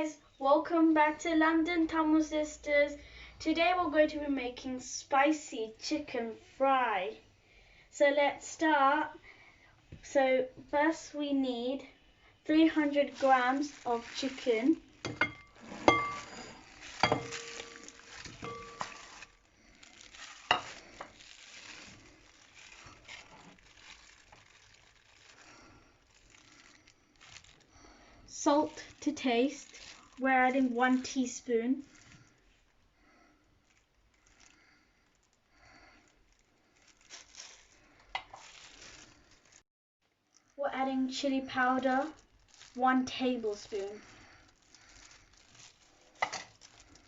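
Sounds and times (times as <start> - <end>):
handling and rustling: 12.5 - 27.7, 28.5 - 31.2, 36.1 - 39.6, 41.7 - 47.0.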